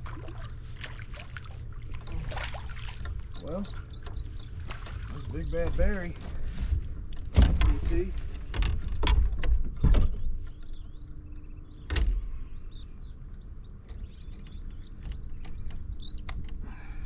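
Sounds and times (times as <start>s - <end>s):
birds chirping: 0.0s - 17.0s
knocks and thumps on a kayak: 3.0s - 10.6s.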